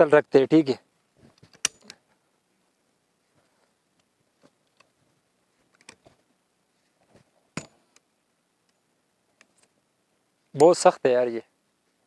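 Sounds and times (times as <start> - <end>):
shotgun handling clicks and knocks: 1.3 - 2.0, 5.7 - 6.2, 7.6 - 8.1
sharp metallic click with ring: 1.6 - 2.0.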